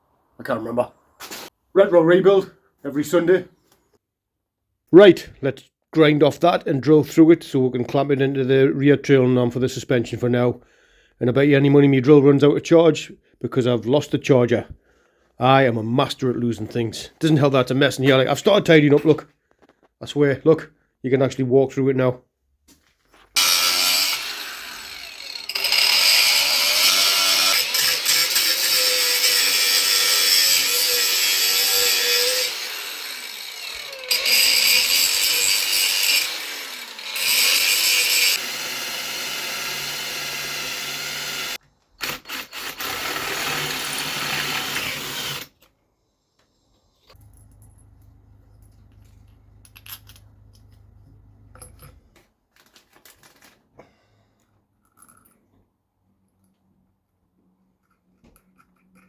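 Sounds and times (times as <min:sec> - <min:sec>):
angle grinder grinding: 0:23.4 - 0:45.6
cordless drill drilling: 0:23.4 - 0:45.6
faint clicks and handling noises: 0:47.0 - 0:53.8.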